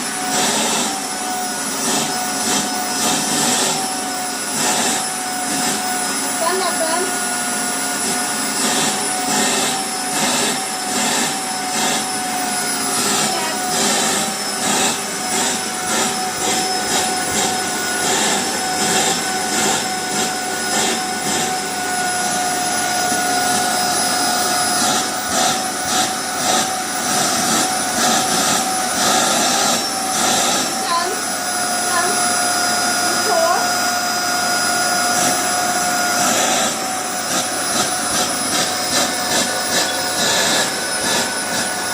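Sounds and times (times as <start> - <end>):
vacuum cleaner whining: 0.0 - 41.9.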